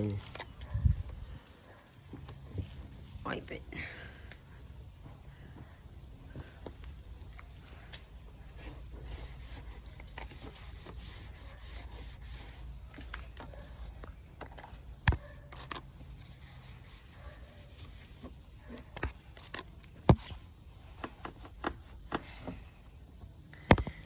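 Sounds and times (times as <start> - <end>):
cloth rubbing on motorcycle: 8.3 - 12.9, 16.1 - 19.0.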